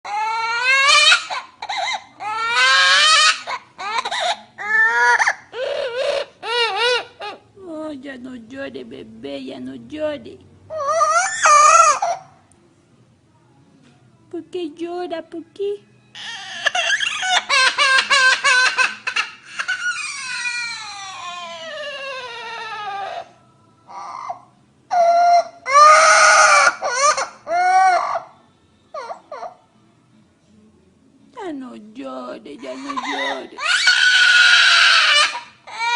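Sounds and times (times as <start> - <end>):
parrot imitating crying baby: 0.0 - 7.5, 10.7 - 12.4, 16.2 - 29.6, 32.6 - 35.9.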